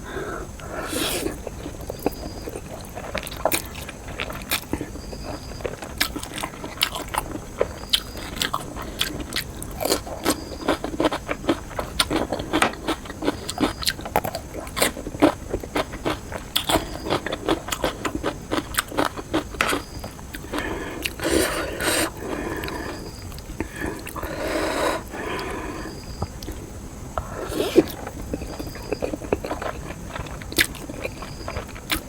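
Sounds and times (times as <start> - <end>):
person chewing food: 0.0 - 32.0.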